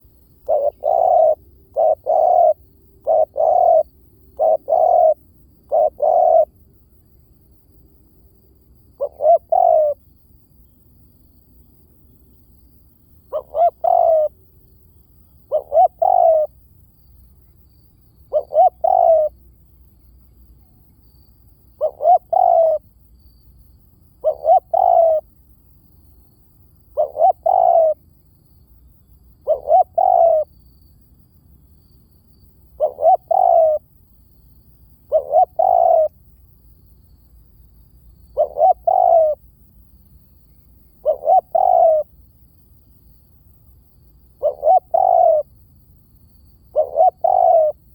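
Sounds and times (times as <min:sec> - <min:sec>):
dove cooing: 0:00.0 - 0:06.5, 0:09.0 - 0:10.0, 0:13.3 - 0:14.4, 0:15.4 - 0:16.6, 0:18.3 - 0:19.4, 0:21.8 - 0:22.9, 0:24.2 - 0:25.3, 0:26.9 - 0:28.0, 0:29.4 - 0:30.5, 0:32.8 - 0:33.8, 0:35.1 - 0:36.2, 0:38.2 - 0:39.5, 0:41.0 - 0:42.1, 0:44.4 - 0:45.5, 0:46.7 - 0:47.9.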